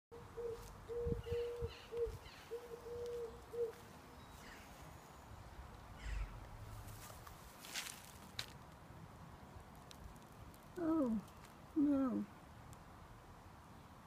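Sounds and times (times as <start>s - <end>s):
dove cooing: 0.2s - 3.8s.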